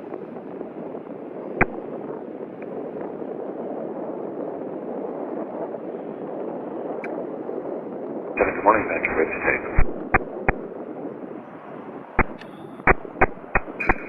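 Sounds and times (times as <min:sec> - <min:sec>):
radio hiss: 0:08.4 - 0:10.6, 0:12.2 - 0:14.0
sharp click: 0:12.2 - 0:14.0.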